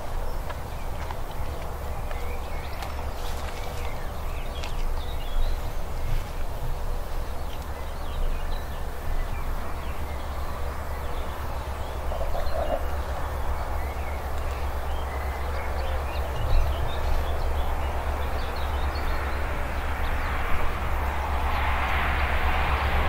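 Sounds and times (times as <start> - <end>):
birds chirping: 0.0 - 21.7
steady low rumble: 0.0 - 23.0
approaching train rushing: 19.1 - 23.0.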